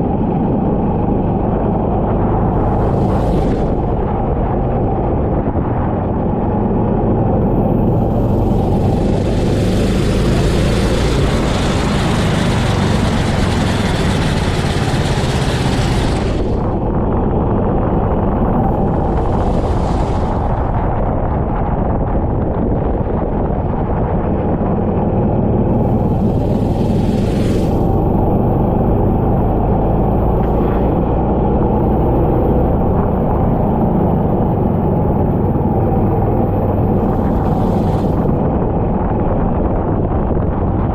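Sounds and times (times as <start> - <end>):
go-kart engine running hard: 0.0 - 40.9.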